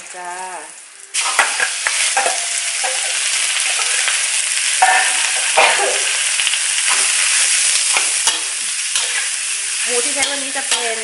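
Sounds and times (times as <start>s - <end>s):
pork sizzling in hot oil: 0.0s - 11.0s
metal spoon clinking and scraping: 1.4s - 4.2s, 6.8s - 11.0s.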